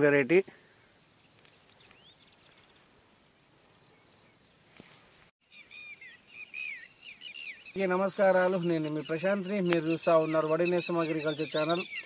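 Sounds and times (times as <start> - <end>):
faint bird calls: 0.6 - 12.0
bird chirping falling chirps: 5.4 - 12.0.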